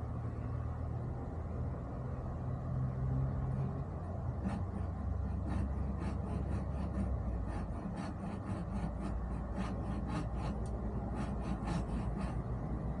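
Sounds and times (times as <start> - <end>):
hand saw cutting wood: 4.4 - 12.5.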